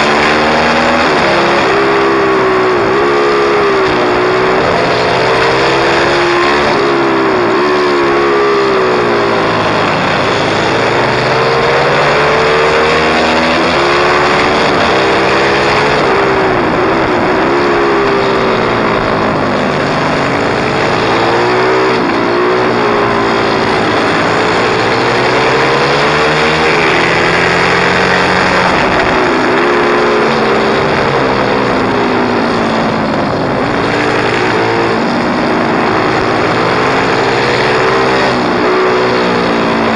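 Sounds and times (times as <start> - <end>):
small motorcycle engine revving: 0.0 - 39.9.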